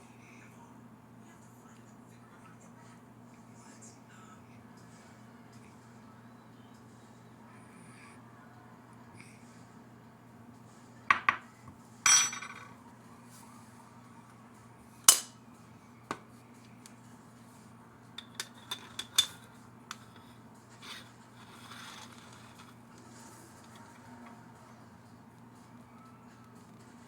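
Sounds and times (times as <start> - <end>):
metal kitchenware knocking and clanking: 12.1 - 12.7.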